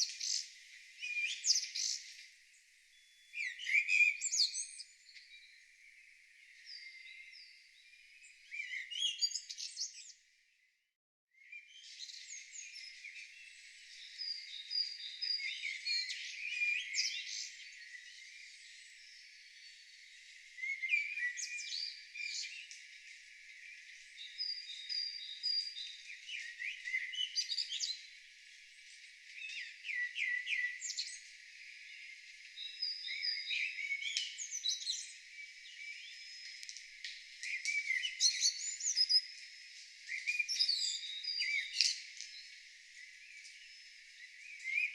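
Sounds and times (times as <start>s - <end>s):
birds chirping and trilling: 0.0s - 10.7s, 11.4s - 44.9s.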